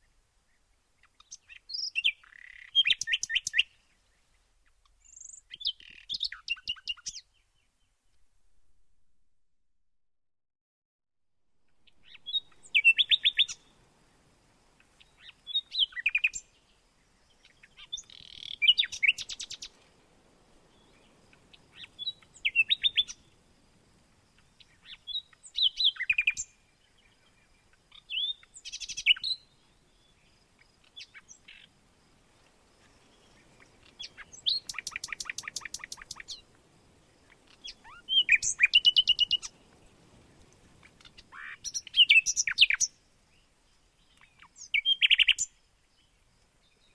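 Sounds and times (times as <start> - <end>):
bird singing chattering phrases: 33.8 - 36.4.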